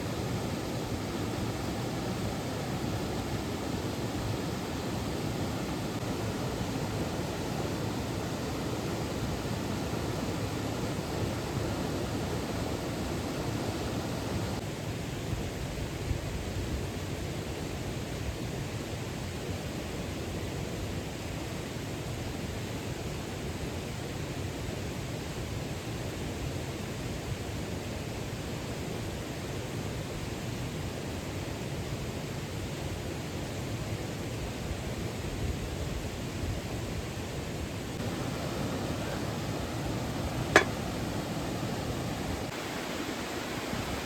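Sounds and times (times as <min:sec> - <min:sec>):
mountain stream rushing: 0:00.0 - 0:14.6, 0:37.8 - 0:44.0.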